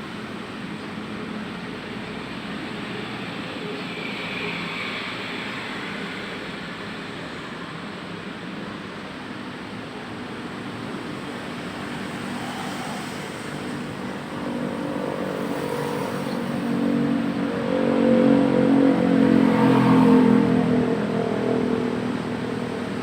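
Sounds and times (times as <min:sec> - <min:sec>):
traffic background: 0:00.0 - 0:23.0.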